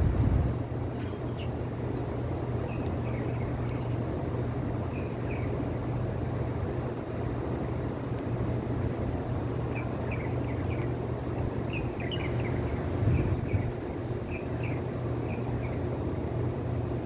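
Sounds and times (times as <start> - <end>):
steady low rumble: 0.0 - 1.0
small bird chirping: 1.0 - 4.0, 4.9 - 5.6, 9.6 - 15.9.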